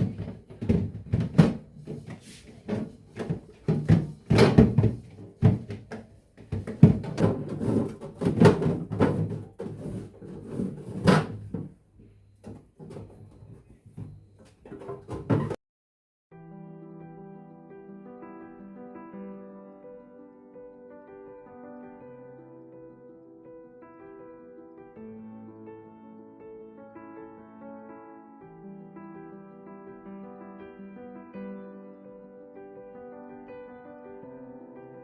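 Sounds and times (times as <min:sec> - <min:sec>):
household items clattering: 0:00.0 - 0:11.8, 0:12.4 - 0:15.6.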